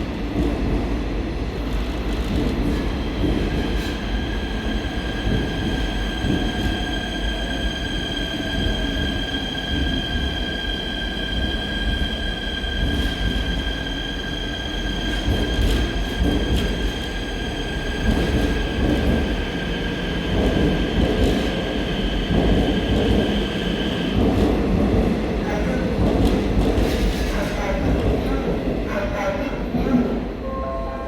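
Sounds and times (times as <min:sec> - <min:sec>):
train wheels rumbling on rails: 0:00.0 - 0:30.3
high-pitched train whine: 0:30.4 - 0:31.0.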